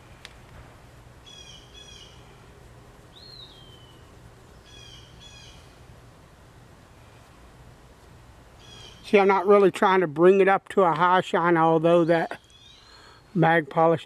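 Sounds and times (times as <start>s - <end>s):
low steady rumble: 0.0s - 14.0s
rising and falling bird call: 1.2s - 2.5s, 3.1s - 5.8s, 8.6s - 9.2s, 12.2s - 13.3s
birds calling harshly: 1.2s - 5.9s, 8.5s - 9.5s, 12.0s - 13.4s.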